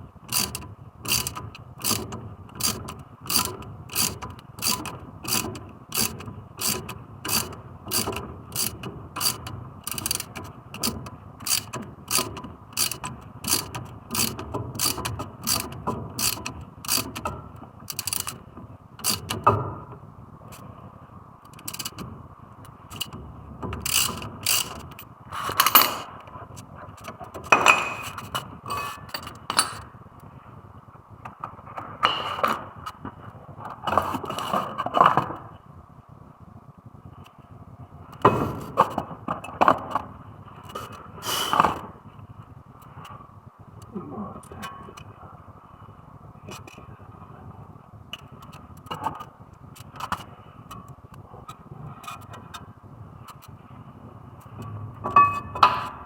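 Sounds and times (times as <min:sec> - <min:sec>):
metallic clicks: 0:00.3 - 0:17.3, 0:17.9 - 0:18.4, 0:19.0 - 0:19.4, 0:21.5 - 0:22.1, 0:23.8 - 0:26.1
ratchet wrench clicking: 0:00.3 - 0:17.3, 0:17.9 - 0:18.4, 0:19.0 - 0:19.4, 0:21.5 - 0:22.0, 0:22.9 - 0:23.2, 0:23.8 - 0:26.1
tools knocking: 0:02.6 - 0:17.3, 0:17.9 - 0:18.4, 0:23.8 - 0:26.1, 0:27.5 - 0:29.8.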